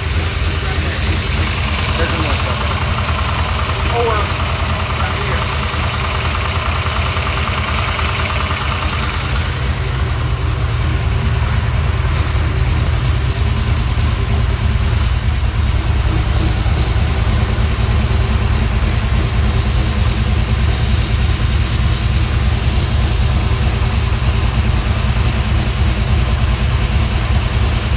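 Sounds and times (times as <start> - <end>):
engine idling with leaking exhaust: 0.0 - 27.9.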